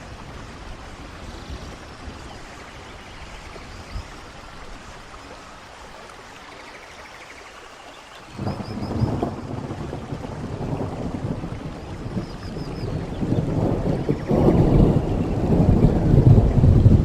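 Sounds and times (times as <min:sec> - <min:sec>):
rain falling: 0:00.0 - 0:17.0
thunder rumble: 0:08.3 - 0:17.0.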